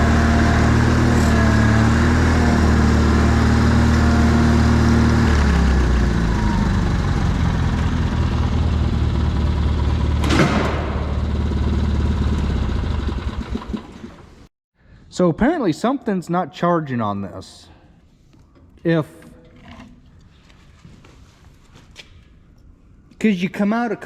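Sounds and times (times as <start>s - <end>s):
old tractor engine running: 0.0s - 14.5s
sharp clunk: 10.2s - 11.2s.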